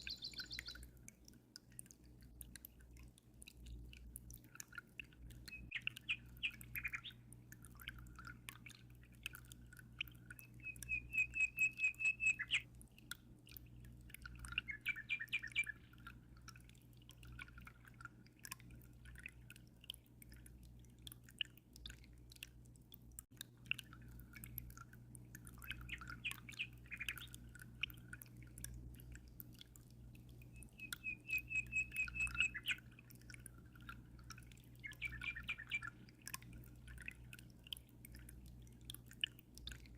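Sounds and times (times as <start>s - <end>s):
birds chirping and calling: 0.0s - 0.8s, 5.7s - 7.2s, 10.8s - 12.6s, 14.6s - 15.8s, 30.6s - 32.8s, 34.8s - 35.9s
rapid pulsed bird trill: 0.0s - 0.8s, 10.4s - 12.6s, 30.5s - 32.8s, 34.8s - 35.9s
faint water drips: 0.0s - 39.9s
low steady hum: 0.0s - 39.9s.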